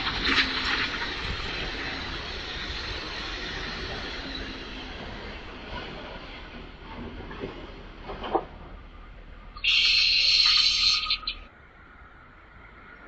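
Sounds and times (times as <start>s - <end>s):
train wheels rolling: 0.0s - 8.9s.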